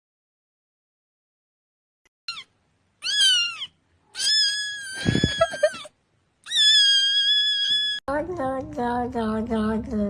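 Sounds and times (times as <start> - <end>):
cat meowing: 2.3 - 8.0.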